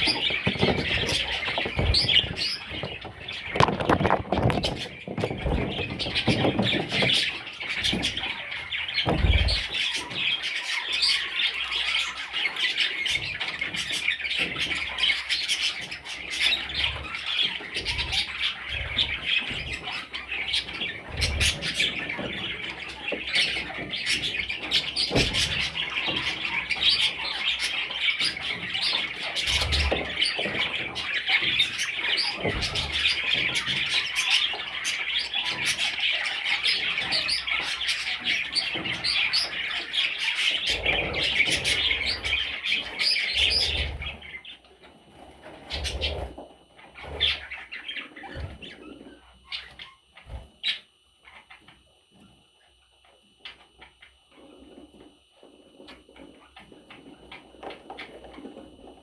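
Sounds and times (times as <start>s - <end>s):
budgerigar chicks calling: 0.0s - 44.6s.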